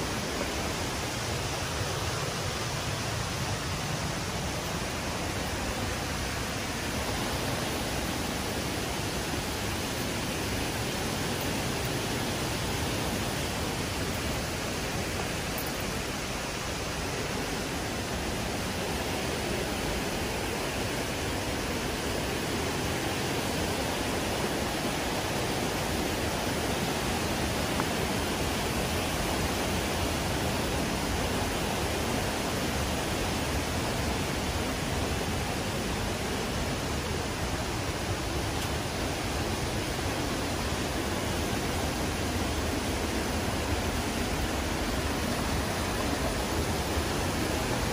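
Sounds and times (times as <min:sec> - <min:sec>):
flowing water rushing: 0:00.0 - 0:47.9.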